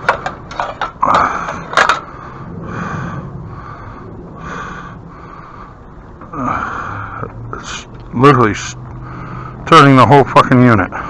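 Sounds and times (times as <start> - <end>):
man breathing heavily: 1.1 - 7.4, 8.9 - 9.7.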